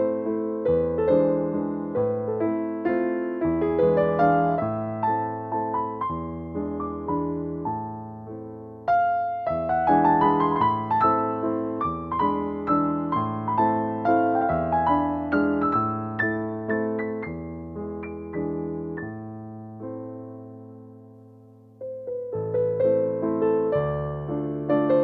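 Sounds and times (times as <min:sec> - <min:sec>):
slow piano music: 0:00.0 - 0:25.0.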